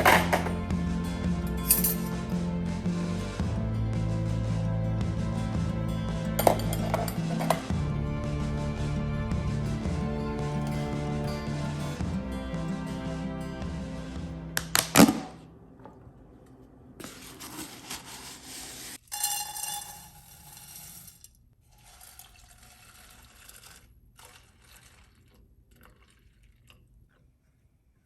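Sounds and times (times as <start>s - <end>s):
dishes clinking: 6.4s - 7.7s.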